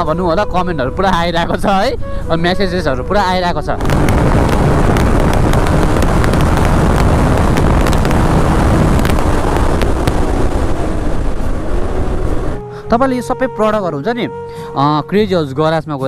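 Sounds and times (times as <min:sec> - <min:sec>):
wind buffeting microphone: 0:01.2 - 0:12.7
motorcycle engine running: 0:03.8 - 0:12.6.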